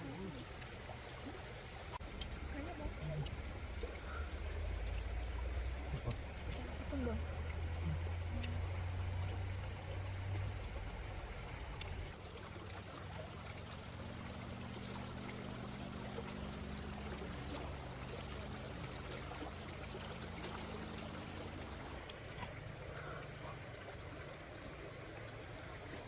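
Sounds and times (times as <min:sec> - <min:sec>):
water trickling: 0:00.0 - 0:26.0.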